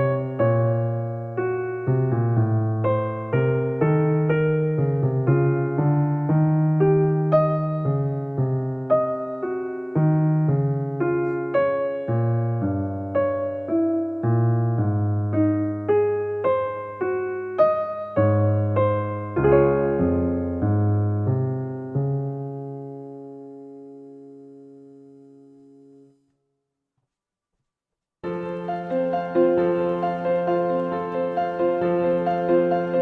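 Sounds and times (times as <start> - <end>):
piano music: 0.0 - 26.2, 28.2 - 33.0.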